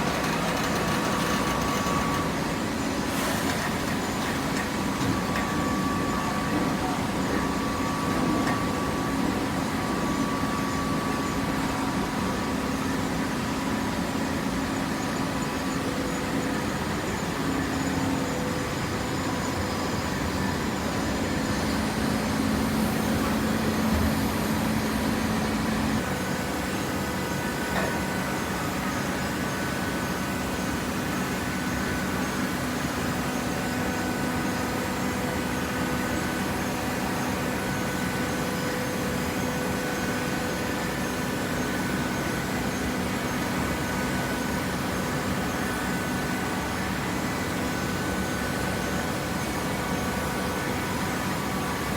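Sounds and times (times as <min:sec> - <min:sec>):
machinery noise: 0:00.0 - 0:08.6
baler pump motor hum: 0:00.0 - 0:51.9.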